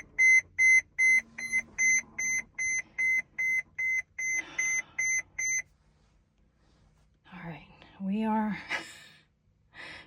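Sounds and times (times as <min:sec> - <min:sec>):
dashboard warning chime beeping: 0:00.0 - 0:05.7.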